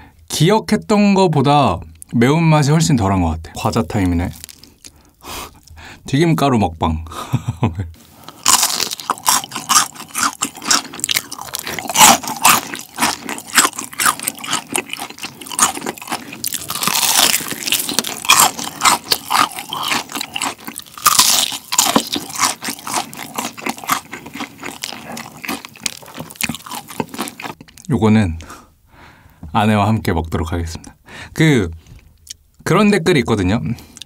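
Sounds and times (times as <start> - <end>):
crunching fried chicken batter: 3.6 - 5.0, 8.2 - 28.0.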